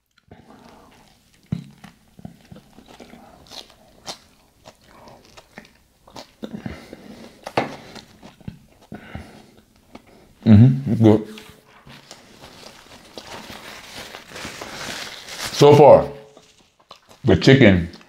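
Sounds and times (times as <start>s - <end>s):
biting into taco: 0.0s - 10.1s, 16.3s - 17.3s
chewing with mouth smacks: 0.0s - 10.1s, 16.4s - 17.3s.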